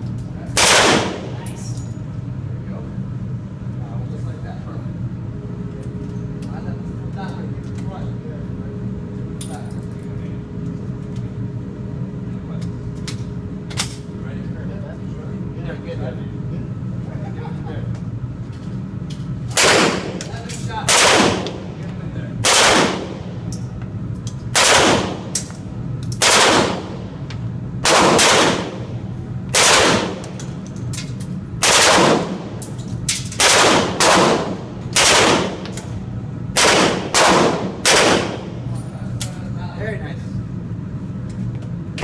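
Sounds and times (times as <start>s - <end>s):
low steady hum: 0.0s - 42.0s
gunshots with echo: 22.4s - 23.2s, 26.2s - 27.0s, 27.9s - 28.8s, 29.6s - 30.2s, 33.4s - 35.6s, 36.6s - 38.5s.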